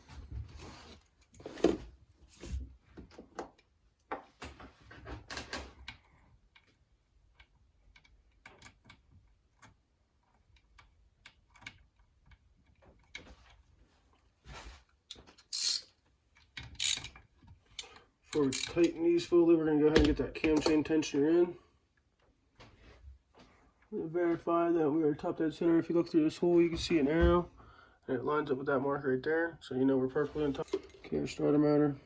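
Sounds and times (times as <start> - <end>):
socket ratchet clicking: 15.4 - 15.8, 16.8 - 17.1, 18.4 - 18.9
metal hand tools clinking: 15.4 - 15.9.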